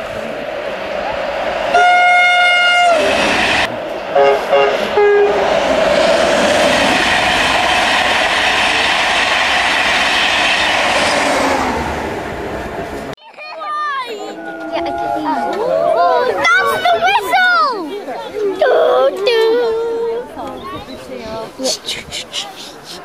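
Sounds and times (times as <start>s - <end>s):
train wheels rumbling on rails: 0.0s - 13.2s
train horn: 1.7s - 5.5s, 14.2s - 15.7s.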